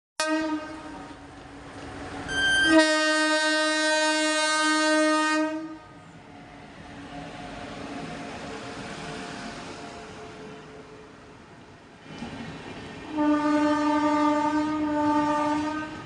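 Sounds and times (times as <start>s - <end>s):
locomotive horn blast: 0.2s - 1.2s, 2.3s - 6.0s, 13.1s - 16.0s
train rumbling: 0.2s - 16.0s.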